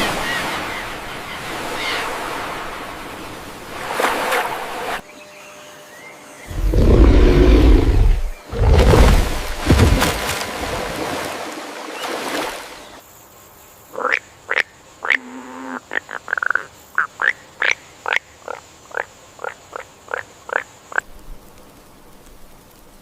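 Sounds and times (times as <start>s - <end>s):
frogs croaking: 12.8s - 21.1s.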